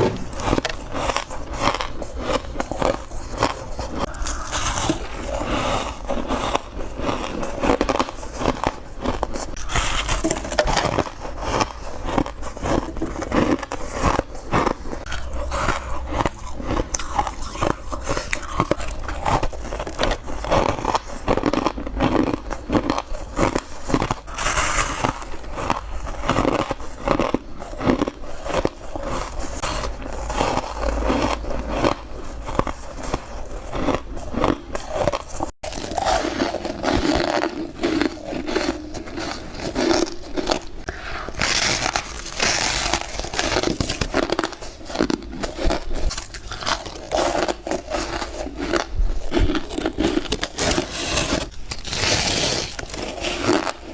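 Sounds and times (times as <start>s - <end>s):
ice crunching: 30.1s - 53.9s.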